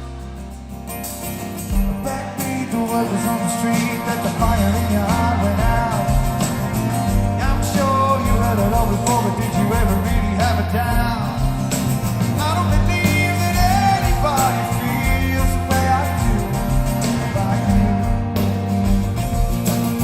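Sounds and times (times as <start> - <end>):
live rock band playing: 0.0 - 20.0
man singing: 1.8 - 18.4.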